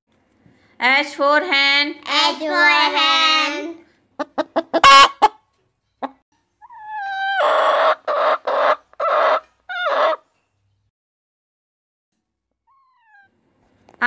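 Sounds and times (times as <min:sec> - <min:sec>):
hens clucking and calling: 0:04.2 - 0:05.4, 0:06.0 - 0:10.3.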